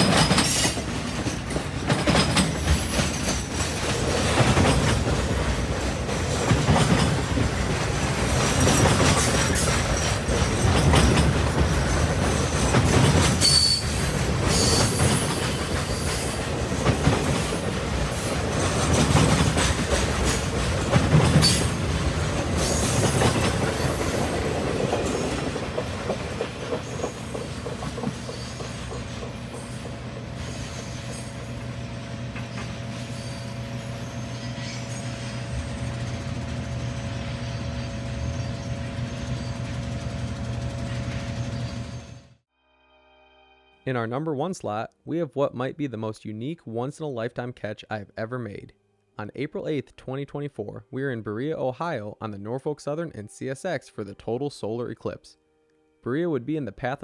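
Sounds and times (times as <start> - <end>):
wheels clicking over rail joints: 0.0 - 42.0
high wheel squeals: 8.5 - 16.5, 20.8 - 21.8, 22.6 - 24.3, 25.0 - 42.3.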